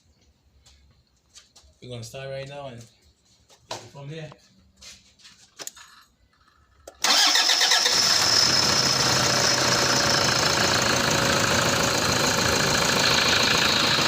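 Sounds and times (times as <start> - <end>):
diesel engine starting and running: 6.8 - 14.0.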